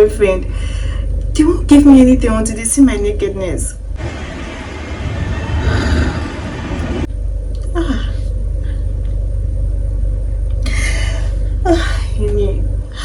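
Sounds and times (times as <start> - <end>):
loud low rumble with hiss: 0.0 - 13.0
falling vocal sound: 5.1 - 7.1.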